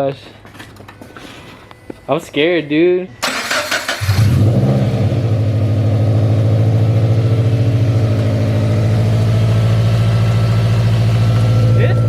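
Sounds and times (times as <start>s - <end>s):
car engine idling: 3.3s - 12.0s.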